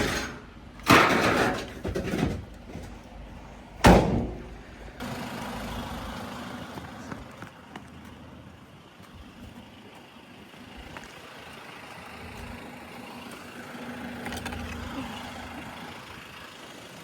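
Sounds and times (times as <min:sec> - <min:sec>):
heavy bangs of scrap: 0:00.0 - 0:03.1, 0:03.8 - 0:04.7
vehicle engine running: 0:02.4 - 0:17.0.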